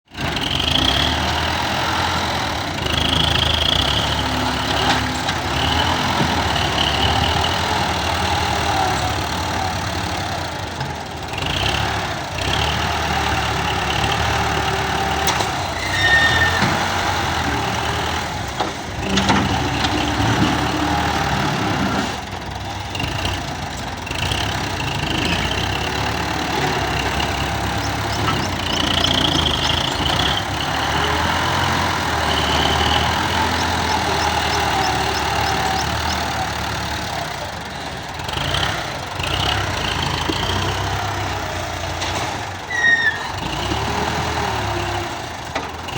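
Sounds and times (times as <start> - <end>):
combine harvester running: 0.1 - 45.9.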